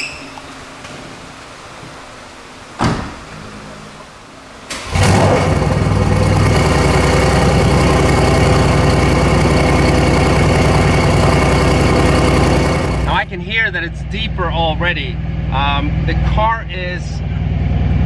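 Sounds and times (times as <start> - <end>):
car engine starting and idling: 0.4 - 18.0
sharp thump: 2.8 - 3.3.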